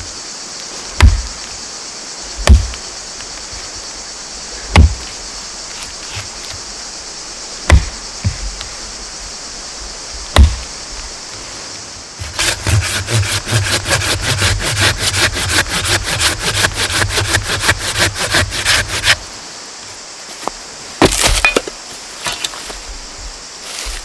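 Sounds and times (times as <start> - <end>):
steady high hiss: 0.0 - 12.8, 19.1 - 24.0
hand saw cutting wood: 12.2 - 19.2.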